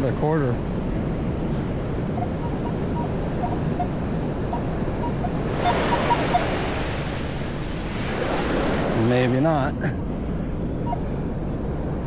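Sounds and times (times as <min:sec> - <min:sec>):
wind on microphone: 0:01.0 - 0:09.6
metal detector beeps: 0:02.2 - 0:07.4
ocean surf on beach: 0:02.4 - 0:10.6.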